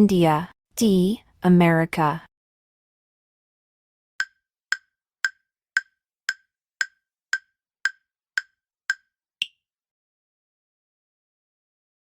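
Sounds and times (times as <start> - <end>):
countdown timer ticking: 4.2 - 9.6.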